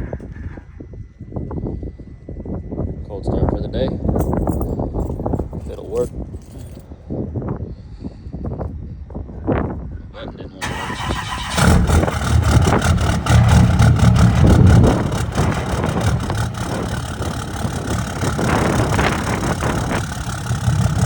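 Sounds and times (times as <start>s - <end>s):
diesel engine idling: 10.6s - 21.0s.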